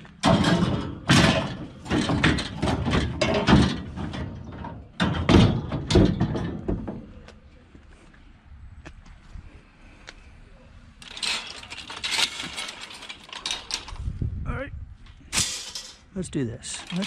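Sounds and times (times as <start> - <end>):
scrap metal clanking and scraping: 0.0 - 7.2, 11.0 - 14.1, 15.3 - 17.0.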